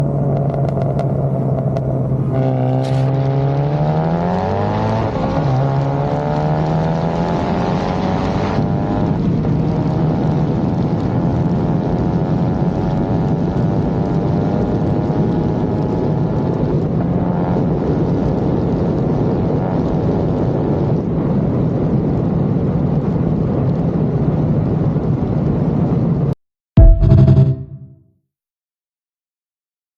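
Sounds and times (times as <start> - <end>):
car engine at full throttle: 0.0 - 21.7
wind and road noise: 0.0 - 26.4.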